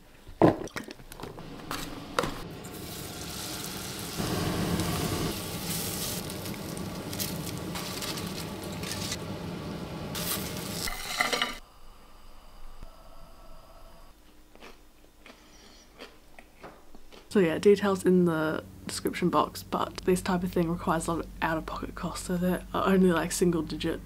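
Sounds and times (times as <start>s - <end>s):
food sizzling in a pot: 2.4s - 11.6s.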